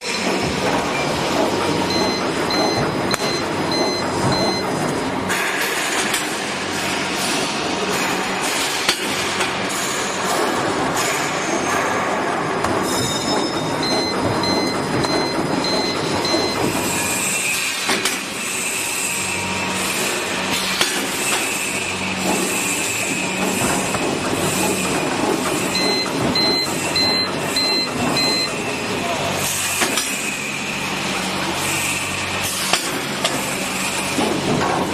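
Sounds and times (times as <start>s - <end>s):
machine mechanical clatter: 0.0s - 18.8s, 19.4s - 28.8s, 29.4s - 30.4s, 31.0s - 34.9s
short high beeps: 25.8s - 28.6s.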